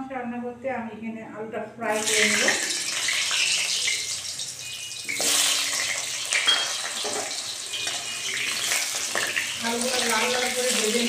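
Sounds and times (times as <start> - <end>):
potato chunks sizzling in hot oil: 1.9 - 11.0.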